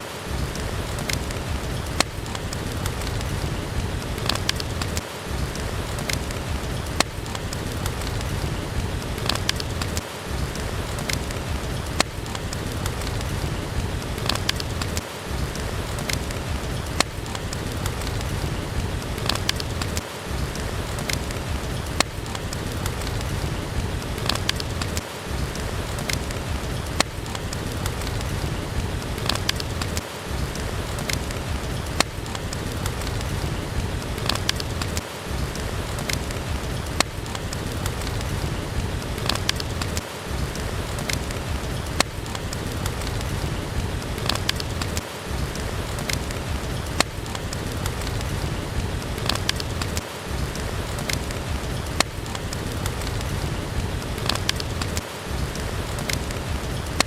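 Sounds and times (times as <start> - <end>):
heavy rain: 0.0 - 57.0
wood fire crackling: 0.0 - 57.0.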